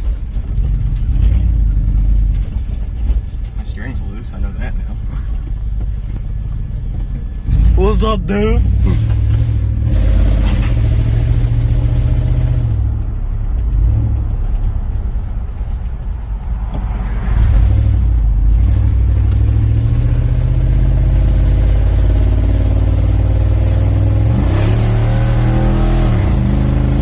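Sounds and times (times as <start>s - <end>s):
loud truck engine exhaust: 7.5s - 13.0s, 17.4s - 27.0s.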